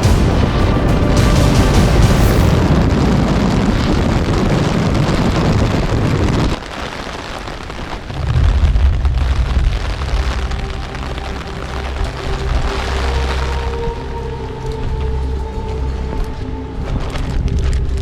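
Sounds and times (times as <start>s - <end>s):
background music hum: 0.0s - 5.0s, 9.0s - 18.0s
wind gusting on microphone: 0.0s - 18.0s.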